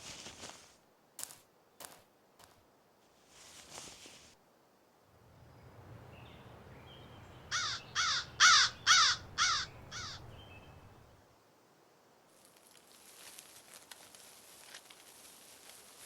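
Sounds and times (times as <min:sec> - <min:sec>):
faint low forest rumble: 0:02.1 - 0:16.0
crow cawing: 0:07.5 - 0:10.3.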